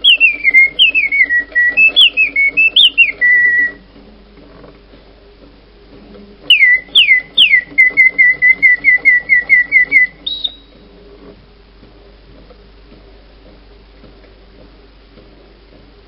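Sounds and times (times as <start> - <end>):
mechanical bird whistling: 0.0 - 3.9, 6.4 - 10.9.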